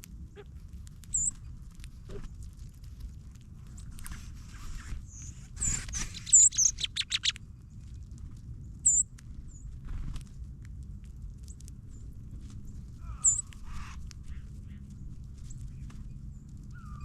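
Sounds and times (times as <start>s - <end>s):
faint low rumble: 0.0s - 17.0s
songbird chip calls: 1.1s - 1.3s, 5.1s - 7.4s, 13.0s - 14.0s.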